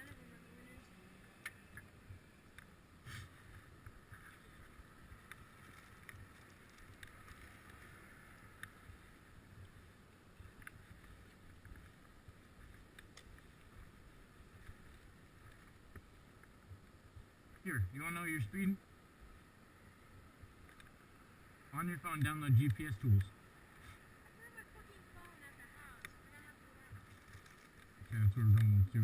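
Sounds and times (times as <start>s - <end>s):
faint low rumble: 0.0s - 29.0s.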